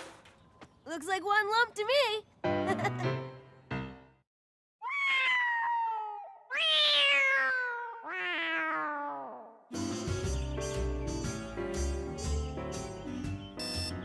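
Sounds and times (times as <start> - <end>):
music: 2.4 - 4.2, 9.7 - 14.0
cartoon cat meowing: 4.8 - 9.6.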